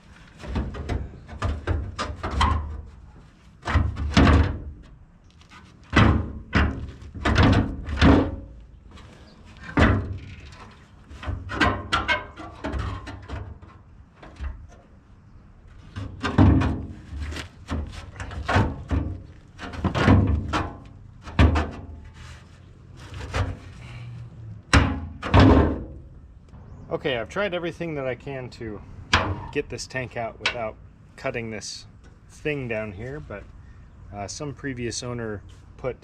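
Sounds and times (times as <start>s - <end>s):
heavy metal knocks and thuds: 3.6s - 4.8s, 5.9s - 8.5s, 16.0s - 17.1s, 17.7s - 22.1s, 24.7s - 26.2s.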